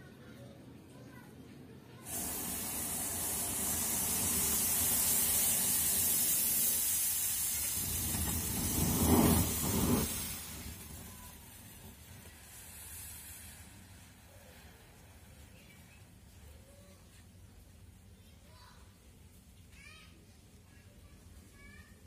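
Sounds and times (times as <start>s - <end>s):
smoke firecrackers hissing: 2.0s - 18.1s
deep hissing surges: 2.1s - 15.6s.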